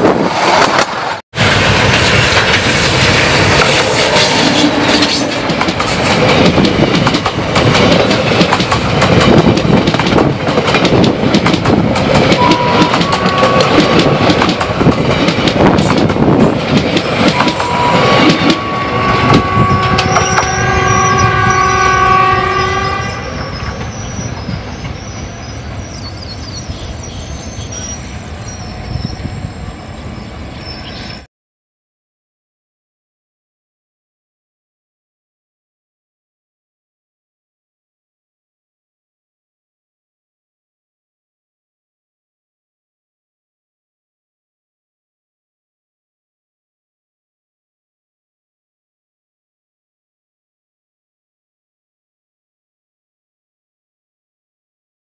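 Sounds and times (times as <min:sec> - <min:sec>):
train wheels clattering: 0:01.6 - 0:20.5
train horn: 0:12.3 - 0:14.1, 0:17.2 - 0:23.7.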